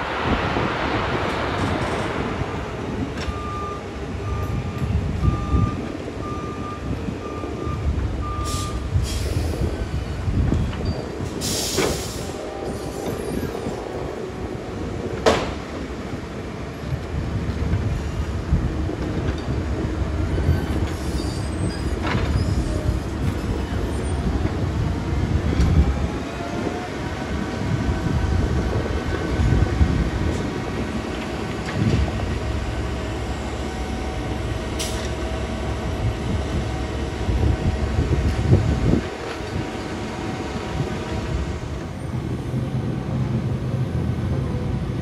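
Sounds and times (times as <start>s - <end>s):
diesel engine rumble: 0.0s - 45.0s
reversing alarm beeping: 3.2s - 8.9s.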